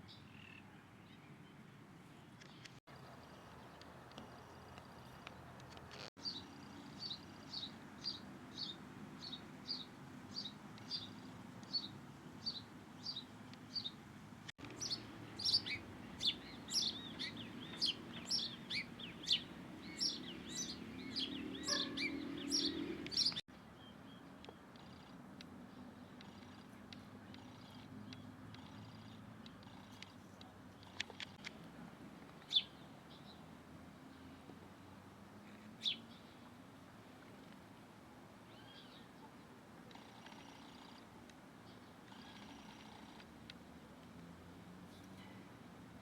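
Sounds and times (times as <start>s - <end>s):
small bird chirping: 14.6s - 25.2s, 26.0s - 31.6s, 39.9s - 43.3s.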